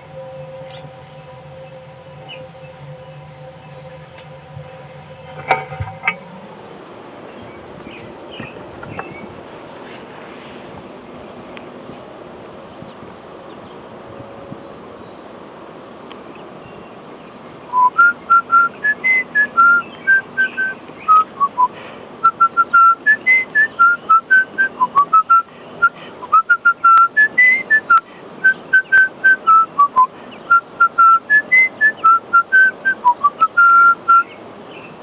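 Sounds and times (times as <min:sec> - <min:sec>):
person whistling a melody: 0:17.7 - 0:34.3.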